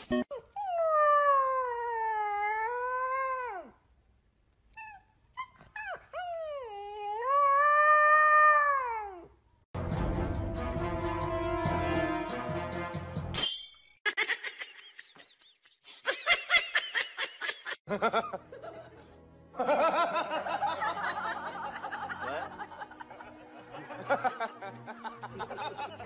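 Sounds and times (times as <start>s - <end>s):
music: 9.8s - 13.4s, 18.0s - 26.0s
people laughing and snickering: 14.1s - 26.0s.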